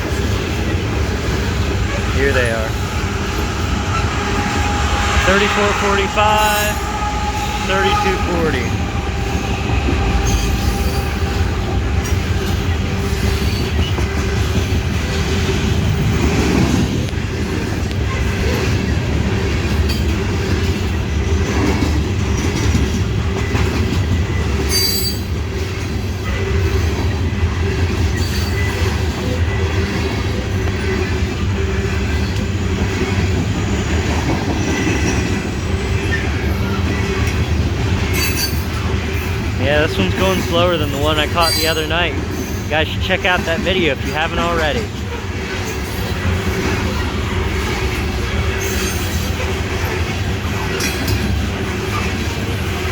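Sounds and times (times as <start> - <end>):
train wheels rumbling on rails: 0.0 - 52.9
high wheel squeal: 1.2 - 14.0, 40.1 - 42.7.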